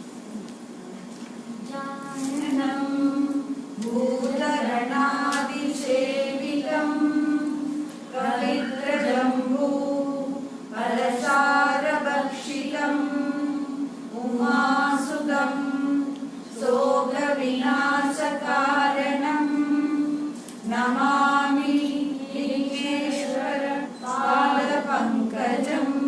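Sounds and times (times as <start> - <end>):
group of voices singing: 1.7 - 26.0.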